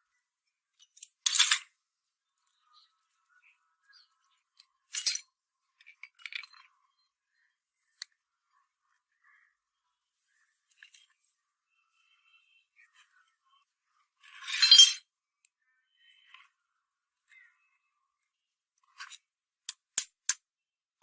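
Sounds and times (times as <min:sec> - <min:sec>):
metallic clinks and scrapes: 0:00.8 - 0:01.7, 0:04.0 - 0:06.7, 0:10.7 - 0:11.3, 0:14.2 - 0:15.0.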